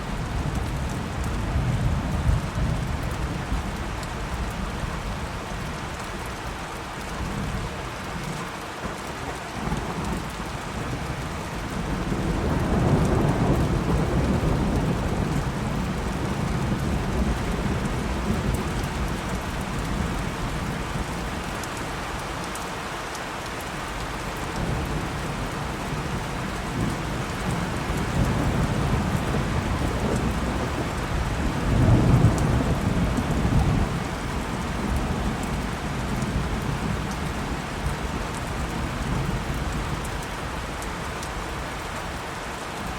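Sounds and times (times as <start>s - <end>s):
steady rain: 0.0s - 42.9s
rolling thunder: 9.6s - 21.2s, 24.4s - 40.0s.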